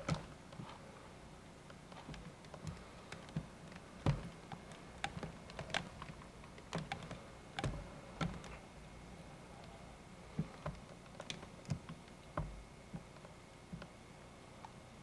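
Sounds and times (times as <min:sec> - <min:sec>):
sharp clicks and light knocks: 0:00.0 - 0:00.8, 0:01.6 - 0:08.6, 0:10.3 - 0:14.0
faint background hiss: 0:00.0 - 0:15.0.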